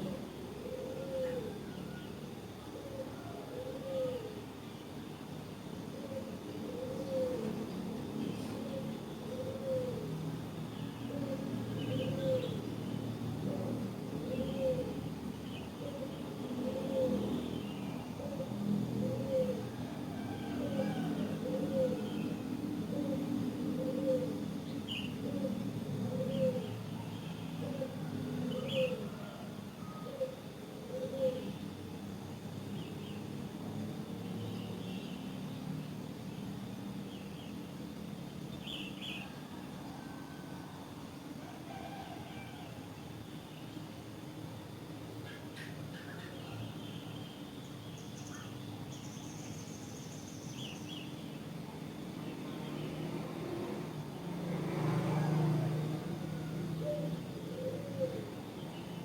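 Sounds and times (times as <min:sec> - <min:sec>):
small birds chirping: 0:45.2 - 0:51.4.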